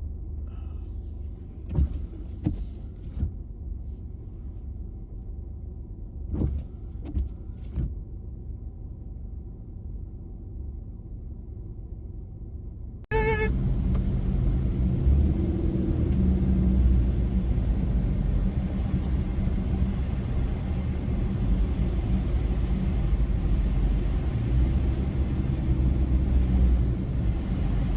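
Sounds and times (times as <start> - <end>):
car road and engine rumble: 0.0 - 27.9
brief tone: 13.1 - 13.5.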